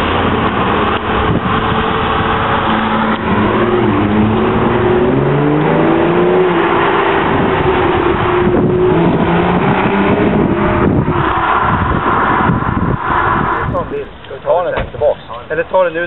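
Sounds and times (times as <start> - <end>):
sports car engines revving: 0.0 - 16.0.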